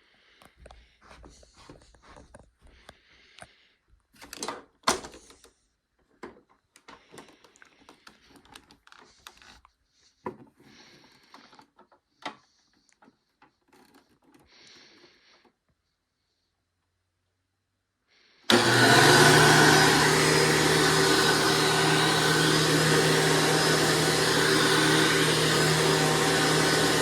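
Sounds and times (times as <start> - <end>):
clicks and rattles of handling: 4.2 - 14.5.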